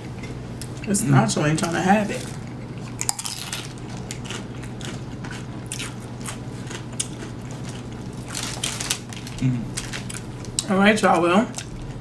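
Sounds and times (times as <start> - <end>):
crunching tortilla chips: 3.0 - 10.6.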